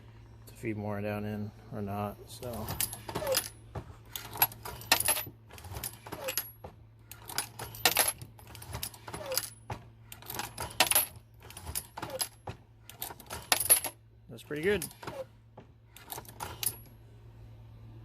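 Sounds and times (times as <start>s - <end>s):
reloading press clinks: 2.5s - 14.0s, 16.0s - 16.9s.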